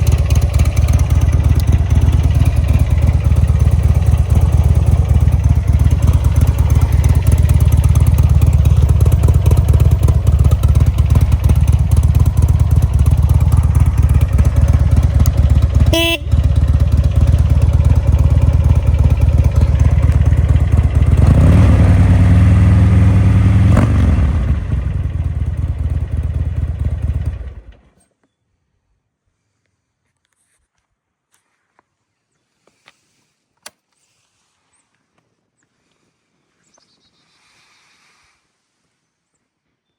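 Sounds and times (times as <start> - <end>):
motorcycle engine idling and revving: 0.0 - 28.0.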